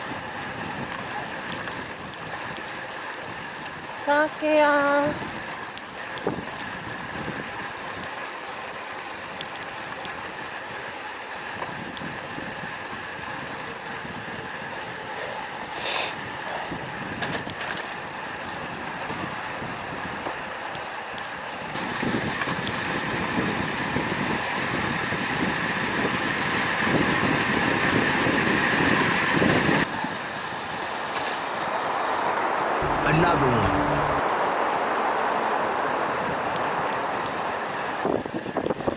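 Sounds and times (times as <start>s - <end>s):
bike tyre and road noise: 20.1s - 32.8s.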